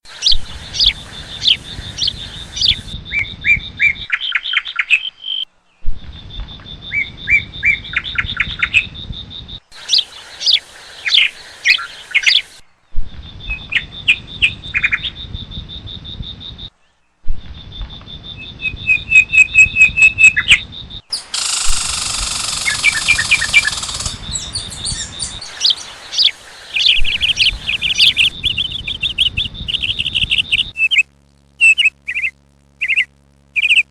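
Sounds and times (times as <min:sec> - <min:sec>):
parrots chirping and calling: 0:21.2 - 0:29.2.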